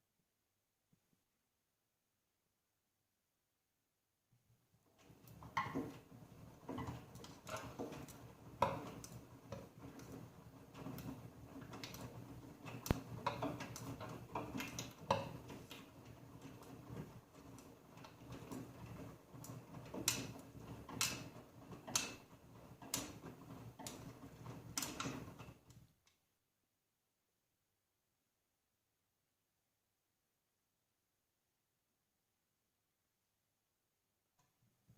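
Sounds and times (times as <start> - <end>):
washing machine hum: 4.8 - 25.8.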